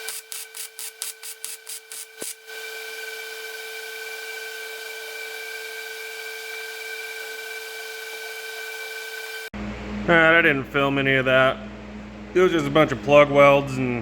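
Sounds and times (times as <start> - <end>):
steady hiss: 0.0 - 2.4.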